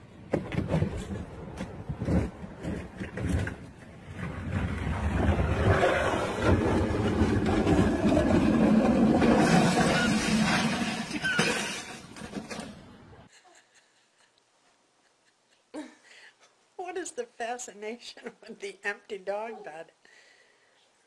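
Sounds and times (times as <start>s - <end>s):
bin and furniture clattering on pavement: 6.4s - 12.9s.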